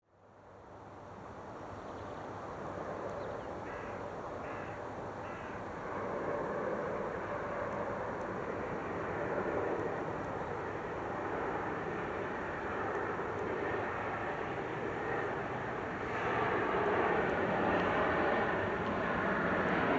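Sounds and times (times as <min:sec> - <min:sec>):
jet airliner engine noise: 0:01.1 - 0:19.9
crow cawing: 0:03.6 - 0:05.6.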